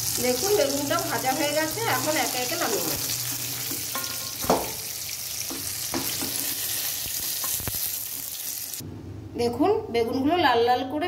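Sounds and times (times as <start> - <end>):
eggplant sizzling in hot oil: 0.0 - 8.8
metal spatula clinking and scraping: 3.2 - 4.8.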